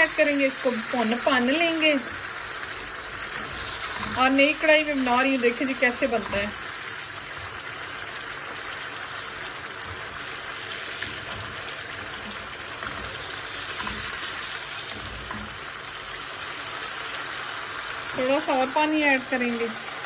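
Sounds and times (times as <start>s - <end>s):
food sizzling in hot oil: 0.0s - 20.0s
spatula stirring in wok: 2.2s - 16.4s.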